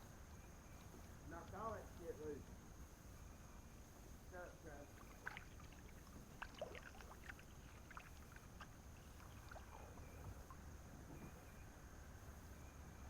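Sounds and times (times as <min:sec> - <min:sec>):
paddle splashes and drips: 0:04.8 - 0:11.0.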